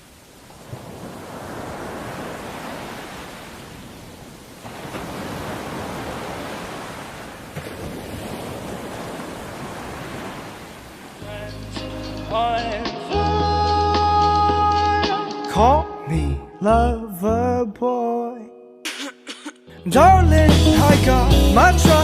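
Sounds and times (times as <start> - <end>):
sea waves washing onto shore: 0.0 - 11.7.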